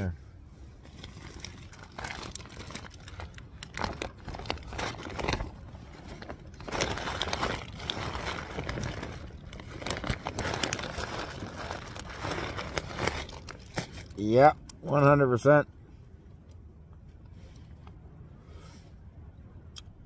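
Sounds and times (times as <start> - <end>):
fabric crinkling and rustling: 0.7 - 14.2.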